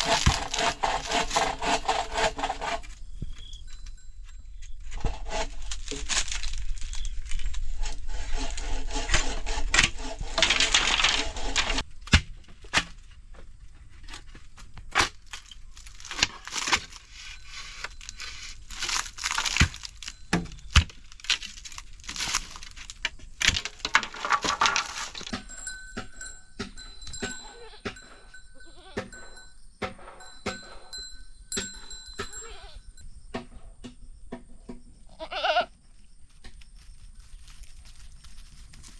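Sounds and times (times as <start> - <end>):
goat bleating: 28.6 - 29.2, 35.1 - 35.7.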